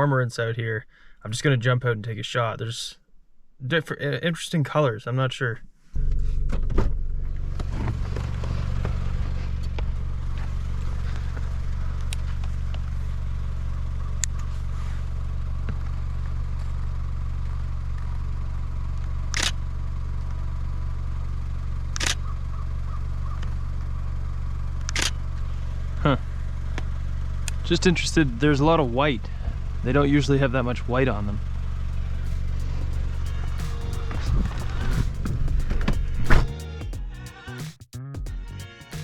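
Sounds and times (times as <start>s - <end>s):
steady low rumble: 5.6s - 19.5s, 21.6s - 37.2s
camera shutter bursts: 19.3s - 19.6s, 22.0s - 22.2s, 24.9s - 25.2s.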